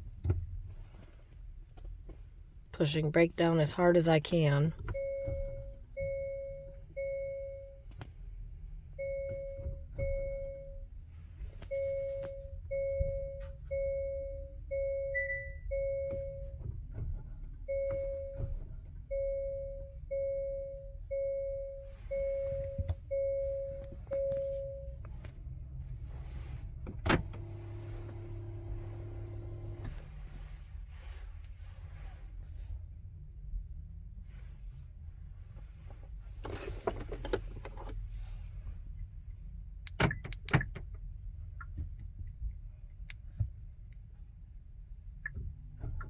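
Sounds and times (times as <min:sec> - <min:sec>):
low steady hum: 0:00.0 - 0:46.0
car warning chime: 0:02.8 - 0:07.9, 0:09.0 - 0:10.9, 0:11.7 - 0:16.6, 0:17.6 - 0:25.0.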